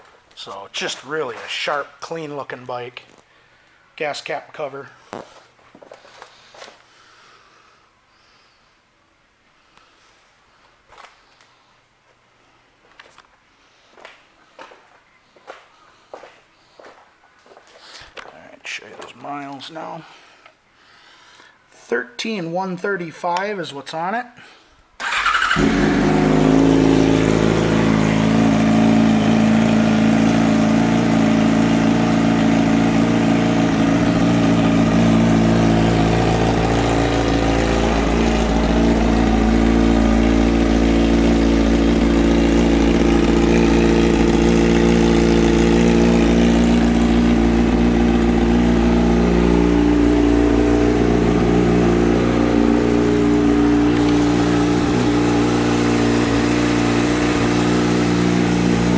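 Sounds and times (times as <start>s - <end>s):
motorcycle engine idling: 25.0s - 58.9s.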